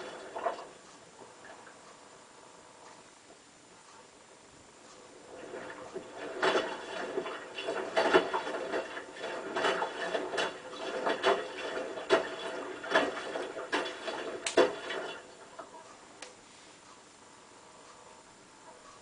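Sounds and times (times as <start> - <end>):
washing machine drum knocking and sloshing: 0.0 - 0.8, 5.3 - 15.8.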